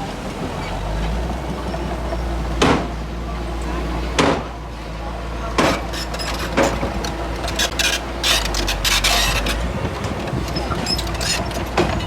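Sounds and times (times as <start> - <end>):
bulldozer diesel drone: 0.0 - 12.0
scraping and clattering: 5.6 - 12.0.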